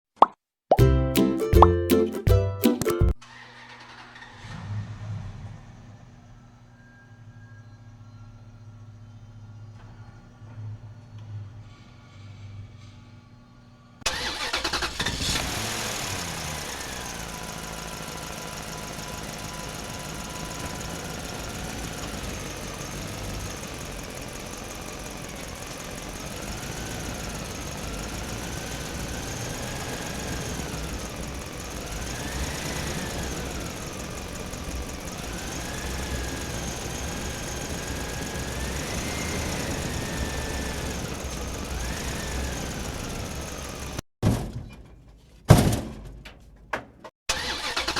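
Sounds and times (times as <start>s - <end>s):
engine starting and revving: 3.2s - 8.2s, 14.1s - 44.0s, 47.3s - 47.9s.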